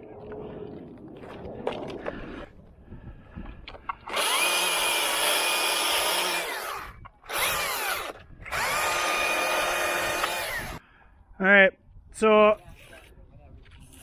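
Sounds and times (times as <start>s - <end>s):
chainsaw revving: 4.1s - 10.8s.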